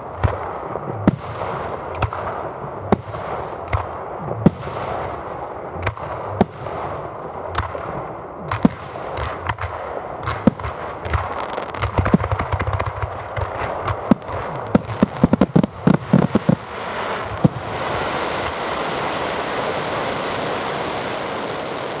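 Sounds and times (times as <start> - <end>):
fireworks bangs: 0.0 - 22.0
steady rushing noise: 12.6 - 22.0.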